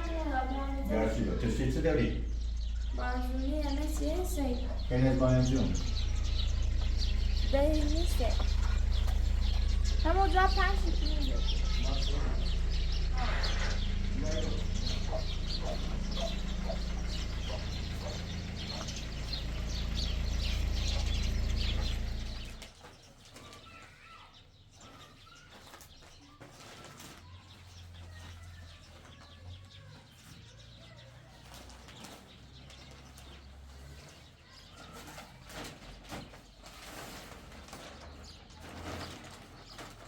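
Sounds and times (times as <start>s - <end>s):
loud low rumbling with crackling: 0.0s - 22.7s
faint bird calls: 0.0s - 40.0s.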